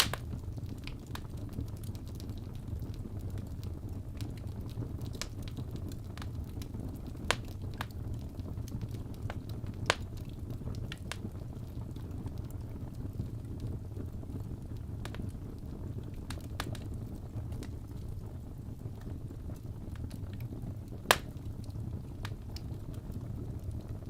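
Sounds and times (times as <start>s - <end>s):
burning logs crackling: 0.0s - 24.0s
low rumble of flames: 0.0s - 24.0s.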